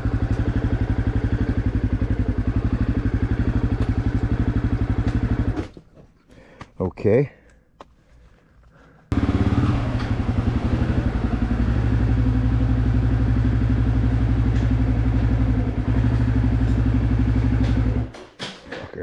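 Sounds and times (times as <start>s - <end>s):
dirt bike engine idling: 0.0s - 5.7s, 9.1s - 18.1s.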